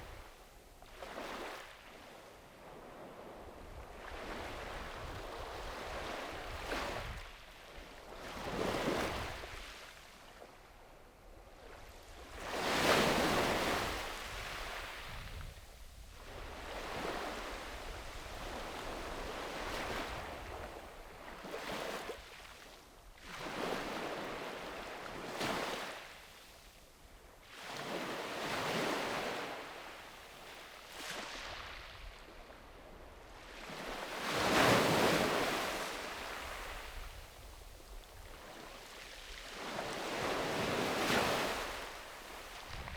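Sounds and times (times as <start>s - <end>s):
small sea waves breaking on beach: 0.0s - 10.9s, 11.5s - 26.8s, 27.4s - 42.9s
wind rumble on microphone: 2.6s - 7.4s, 11.4s - 21.4s, 42.4s - 42.9s.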